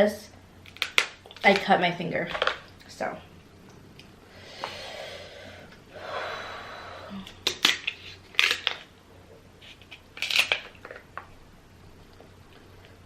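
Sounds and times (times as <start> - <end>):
crab shell cracking: 0.6 - 1.6, 7.3 - 8.9, 9.6 - 11.3.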